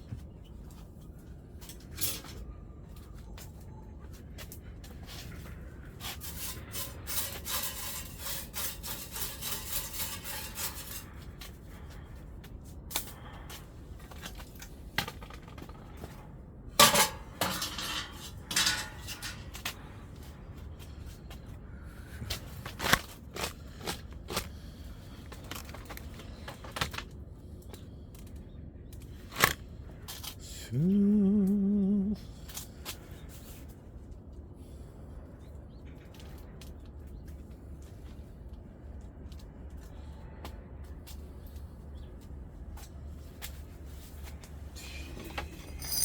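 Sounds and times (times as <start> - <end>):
scraping inside wood stove: 5.1 - 11.9, 16.8 - 19.8, 44.7 - 46.0.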